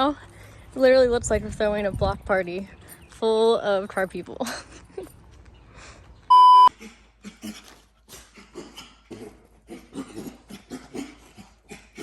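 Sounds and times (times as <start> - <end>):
electronic beep: 6.3 - 6.7.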